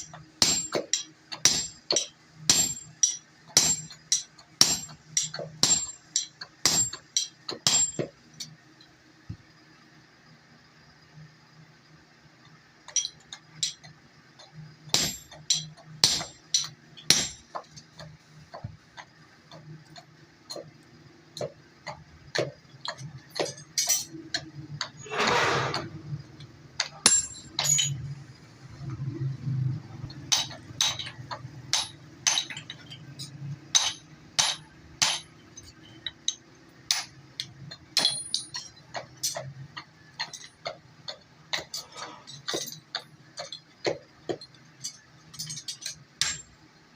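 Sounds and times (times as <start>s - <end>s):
scraping hiss: 25.0s - 26.0s.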